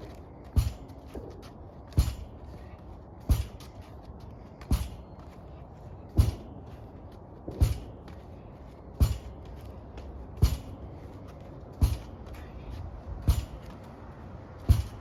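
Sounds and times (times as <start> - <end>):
ball knocking wall and stick: 9.0 - 10.8, 11.7 - 12.3, 14.5 - 15.0.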